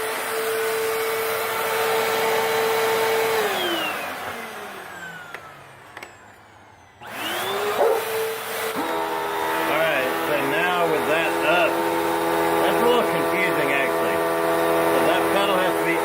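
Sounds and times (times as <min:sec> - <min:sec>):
vacuum cleaner motor whining: 0:00.0 - 0:16.0.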